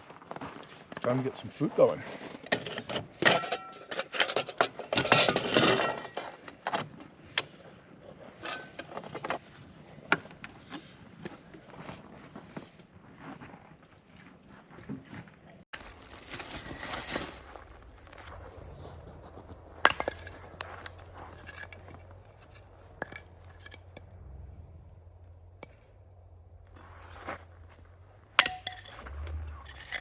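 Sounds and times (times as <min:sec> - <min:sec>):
steady low hum: 0:15.8 - 0:30.0.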